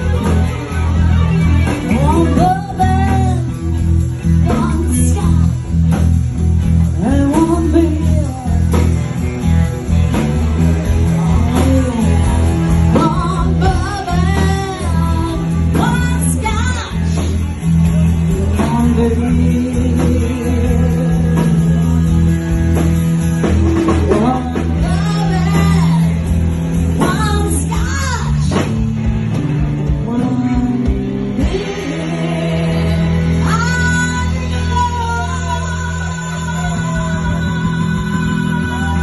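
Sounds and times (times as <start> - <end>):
lead guitar bending notes: 0.0 - 27.8
bass: 0.0 - 39.0
drums: 0.0 - 39.0.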